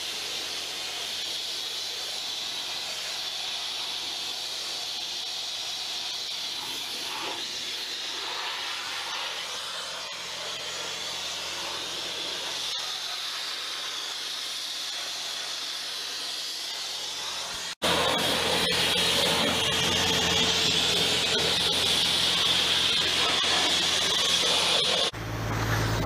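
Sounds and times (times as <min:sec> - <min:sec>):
sandblaster hissing: 0:00.0 - 0:26.0.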